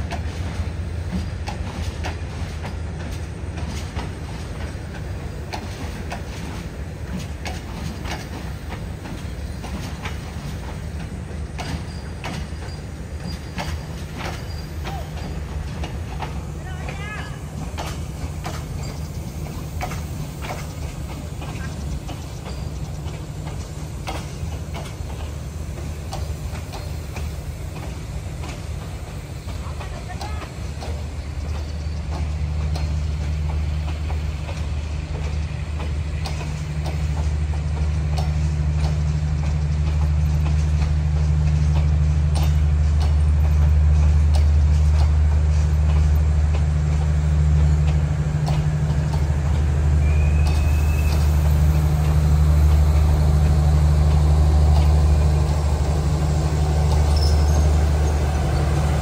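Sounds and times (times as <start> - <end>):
train rolling past: 0.0 - 59.0
wheels clicking: 1.2 - 59.0
rising wheel squeal: 50.0 - 51.6, 57.0 - 58.8.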